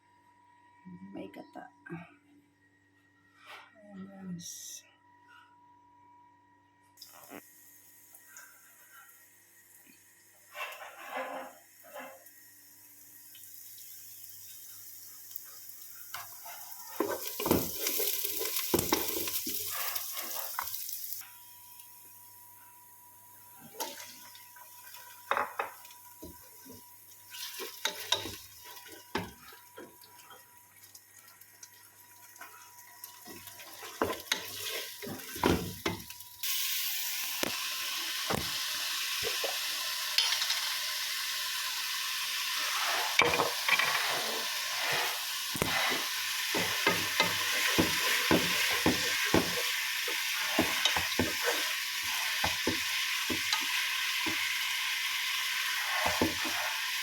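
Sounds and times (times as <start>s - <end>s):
food sizzling in hot oil: 7.1s - 22.1s, 23.6s - 57.0s
spatula scraping pan: 10.5s - 12.2s, 42.6s - 54.4s, 55.7s - 57.0s
utensils clinking against pan: 27.3s - 29.6s, 39.2s - 40.8s, 43.1s - 44.3s, 45.6s - 51.7s.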